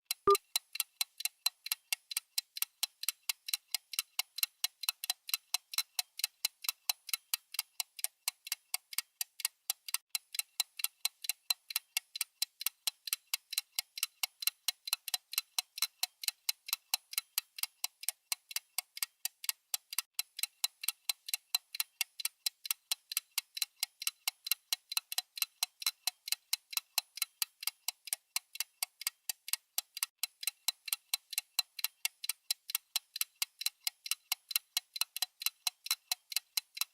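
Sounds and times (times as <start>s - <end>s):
clock ticking: 10.8s - 36.9s.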